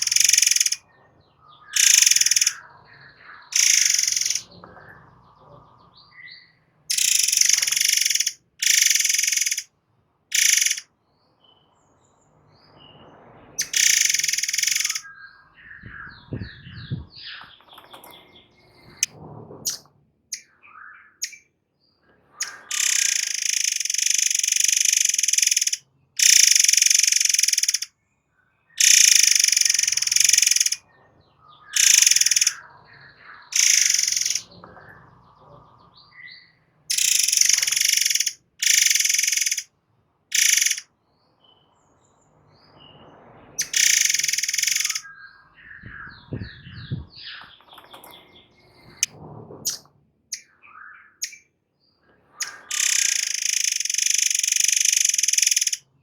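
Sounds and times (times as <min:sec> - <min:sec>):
soft bird chirps: 0:00.0 - 0:09.7, 0:10.3 - 0:19.1, 0:19.7 - 0:39.7, 0:40.3 - 0:49.1, 0:49.7 - 0:55.9
songbird buzzy song: 0:00.0 - 0:39.7, 0:40.3 - 0:56.0.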